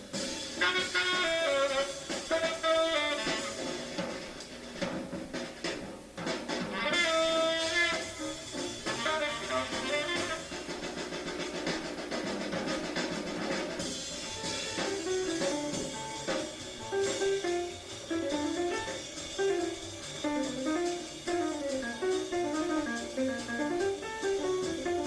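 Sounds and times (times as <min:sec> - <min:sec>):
drum kit: 0:00.0 - 0:25.0
tenor saxophone: 0:00.6 - 0:03.8, 0:06.8 - 0:10.8.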